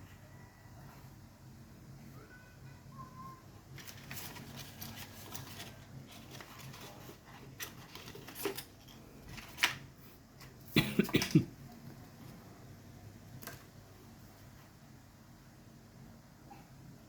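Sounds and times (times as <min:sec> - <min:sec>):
packaging rustling: 0:03.7 - 0:09.8.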